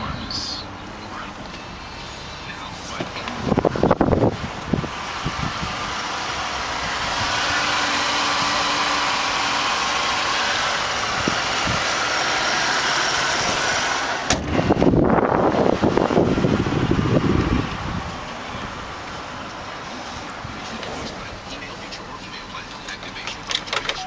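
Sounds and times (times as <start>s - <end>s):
car engine idling: 0.0s - 24.0s
wind buffeting microphone: 3.3s - 6.0s, 11.0s - 12.0s, 14.4s - 19.4s.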